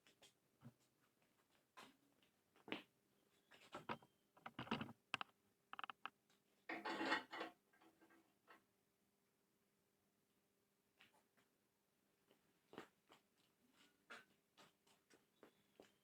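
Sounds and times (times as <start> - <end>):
clicks and knocks: 3.8 - 7.6.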